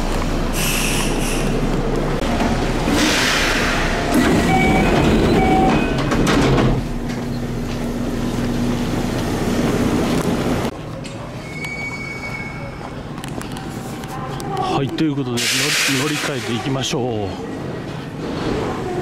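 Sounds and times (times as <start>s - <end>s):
train car hum: 0.0s - 19.0s
train doors sliding open: 0.5s - 10.7s, 15.3s - 16.7s.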